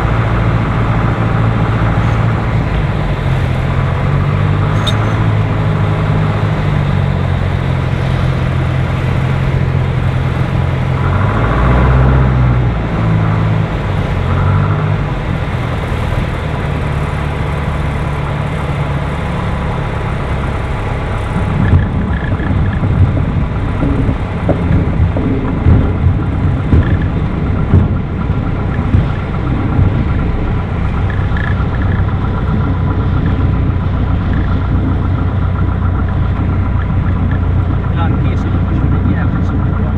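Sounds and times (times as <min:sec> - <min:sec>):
light aircraft piston engine: 0:00.0 - 0:39.9
low thumps and knocks: 0:20.4 - 0:39.9.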